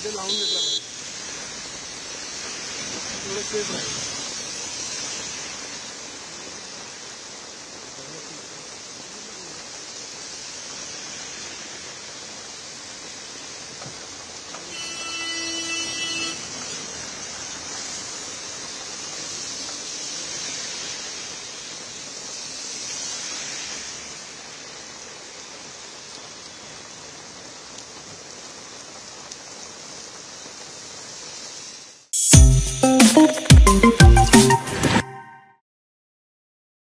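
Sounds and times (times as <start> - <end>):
heavy rain pouring: 0.0 - 15.2, 16.3 - 34.9
brief pitched tone: 32.2 - 35.6.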